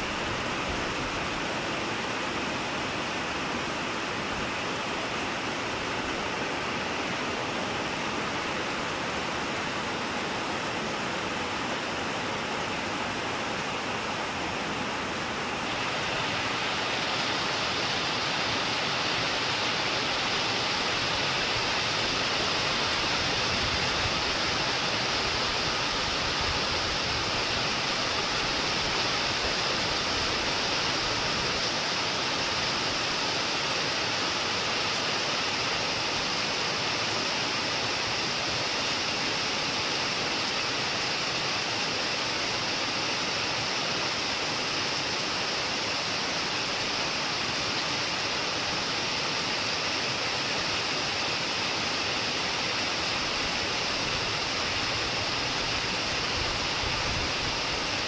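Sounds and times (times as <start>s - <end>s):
heavy rain pouring: 12.6s - 36.3s.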